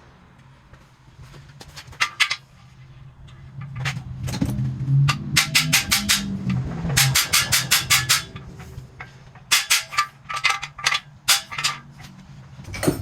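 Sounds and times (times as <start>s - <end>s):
hammer striking metal driver: 4.4s - 8.8s, 9.4s - 11.9s.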